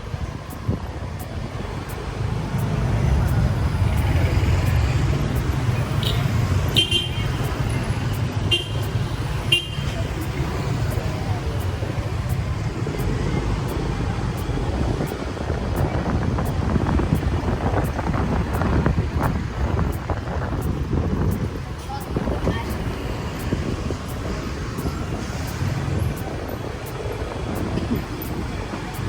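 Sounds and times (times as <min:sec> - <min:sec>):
wind rumble: 0:00.0 - 0:29.0
motorbike engine: 0:01.2 - 0:29.0
motorbike horn toots: 0:06.0 - 0:07.4, 0:08.5 - 0:10.1.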